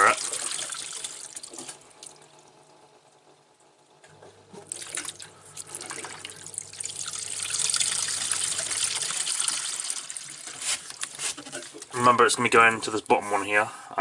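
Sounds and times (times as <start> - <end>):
water rushing through drain: 0.0 - 2.5, 4.6 - 12.0
drain pump humming: 0.0 - 14.0.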